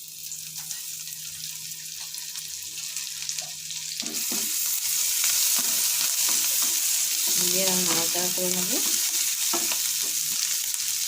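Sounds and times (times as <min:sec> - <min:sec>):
garlic sizzling in butter: 0:00.0 - 0:11.0.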